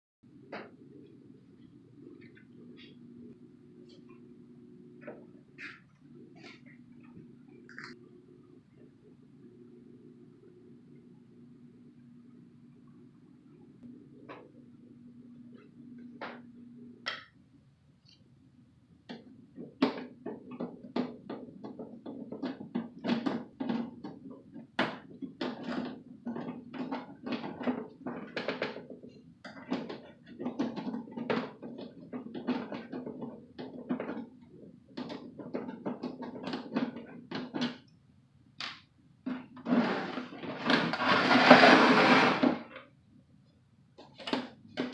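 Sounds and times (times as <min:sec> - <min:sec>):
steady low hum: 0:00.3 - 0:19.6.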